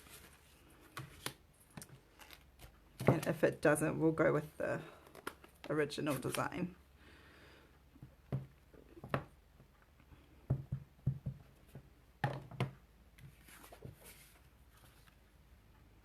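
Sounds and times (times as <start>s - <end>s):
paper rustling: 13.3s - 15.2s.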